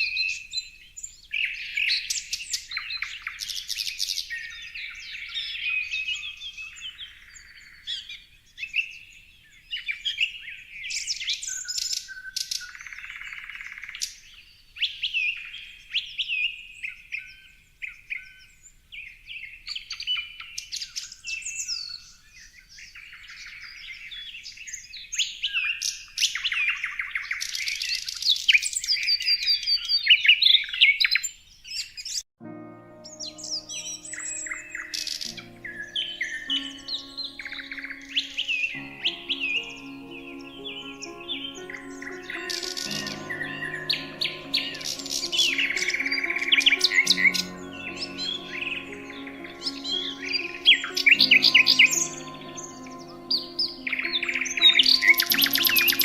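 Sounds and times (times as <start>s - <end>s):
birds chirping and singing: 33.2s - 56.0s.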